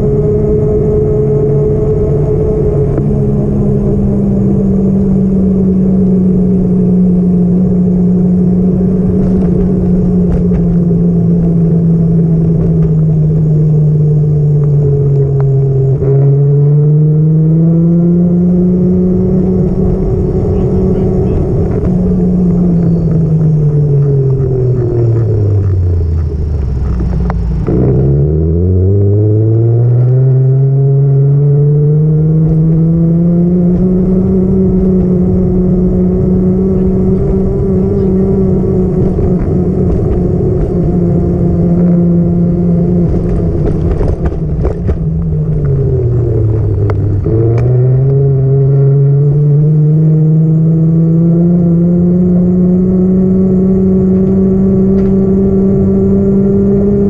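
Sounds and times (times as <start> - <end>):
vehicle engine revving: 0.0 - 57.0.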